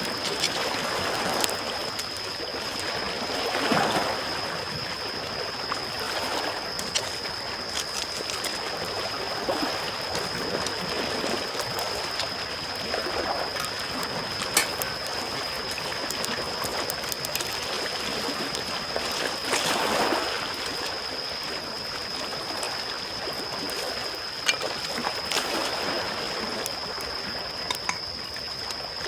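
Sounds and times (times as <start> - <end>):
small waves lapping on shore: 0.0 - 29.0
thin steady high tone: 0.0 - 29.0
campfire crackling and popping: 6.7 - 19.7, 23.4 - 28.8.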